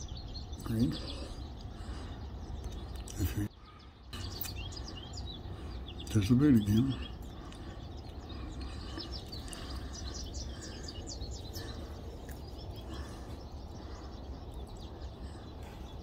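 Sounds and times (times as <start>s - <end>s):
small birds chirping: 0.0s - 16.0s
low background rumble: 6.7s - 16.0s.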